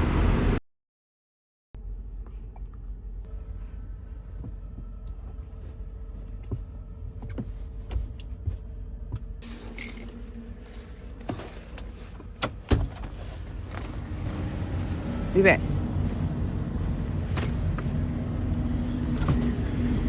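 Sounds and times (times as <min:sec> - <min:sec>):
truck rumble from inside cab: 0:00.0 - 0:00.6, 0:01.8 - 0:20.0.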